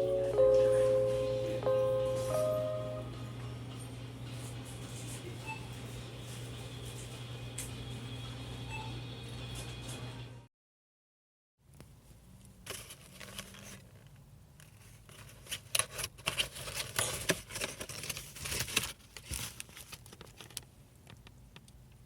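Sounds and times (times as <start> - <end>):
low steady hum: 0.0 - 8.8
rustling and crinkling: 12.4 - 21.8.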